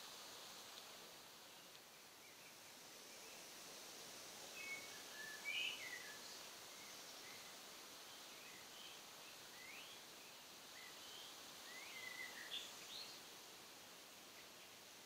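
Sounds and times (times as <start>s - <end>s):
steady hiss: 0.0s - 15.0s
faint birdsong: 4.5s - 13.6s.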